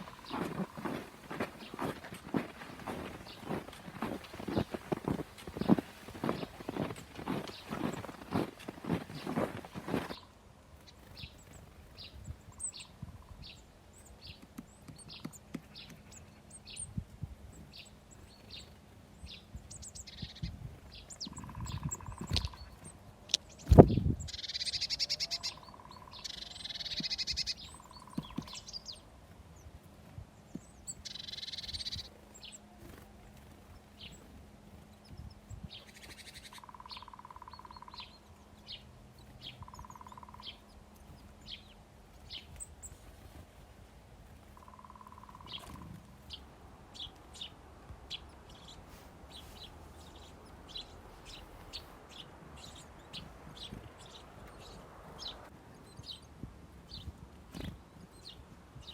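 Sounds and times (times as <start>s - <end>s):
faint low hum: 0.0s - 58.9s
songbirds chirping and twittering: 0.0s - 58.9s.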